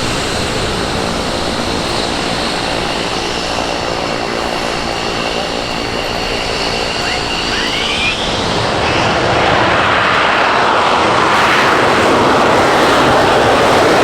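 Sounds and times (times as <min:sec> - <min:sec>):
faint high whine: 0:00.0 - 0:10.9
jet engines roaring: 0:00.0 - 0:14.0.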